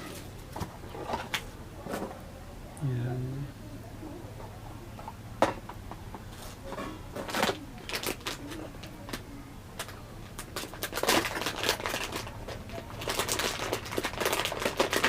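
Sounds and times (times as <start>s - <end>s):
packaging rustling: 7.2s - 9.2s, 9.8s - 15.0s.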